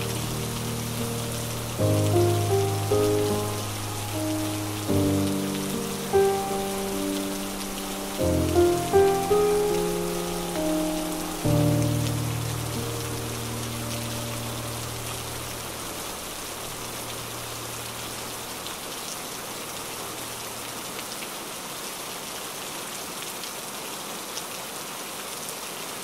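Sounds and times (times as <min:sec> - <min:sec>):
background music: 0:00.0 - 0:15.0
rain pattering on a window: 0:00.0 - 0:26.0.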